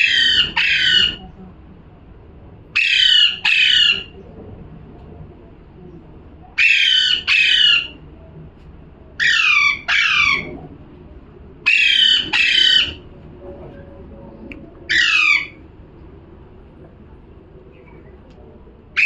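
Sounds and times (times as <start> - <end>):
parrot squawking: 0.0 - 1.2, 2.8 - 4.2, 6.6 - 8.0, 9.2 - 10.6, 11.6 - 13.0, 14.9 - 15.6.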